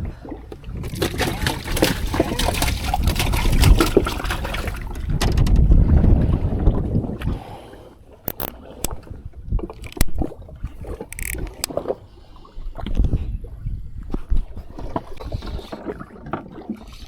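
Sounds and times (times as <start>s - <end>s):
water sloshing against boat hull: 0.2s - 7.4s
knocks and scrapes on boat: 1.0s - 6.1s.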